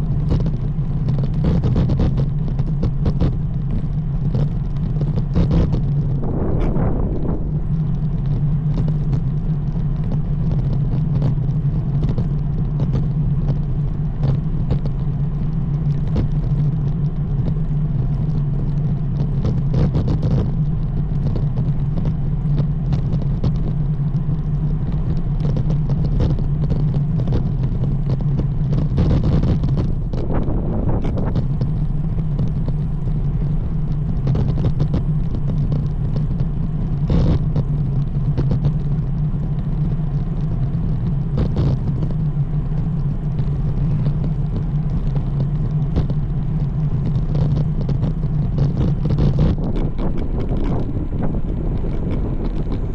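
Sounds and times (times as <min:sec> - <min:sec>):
bike rumble: 0:00.0 - 0:52.9.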